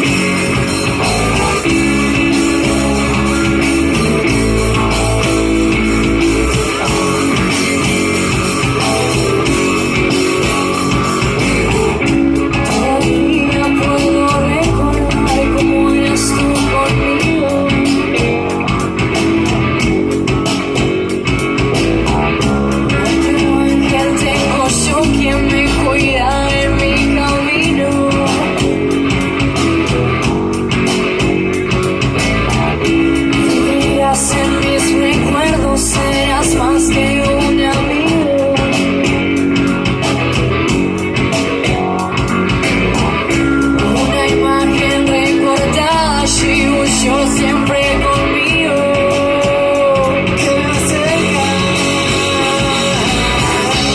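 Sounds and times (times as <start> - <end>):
person singing: 0.0 - 19.1, 22.7 - 29.7, 33.3 - 40.0, 43.6 - 53.9
bass guitar: 0.0 - 53.9
drums with steady beat: 0.0 - 53.9
electric guitar: 0.0 - 53.9.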